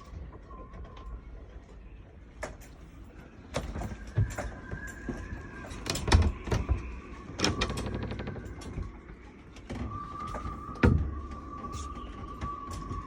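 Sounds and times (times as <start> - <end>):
steady whistling tone: 3.2 - 13.0
low wind rumble: 3.3 - 13.0.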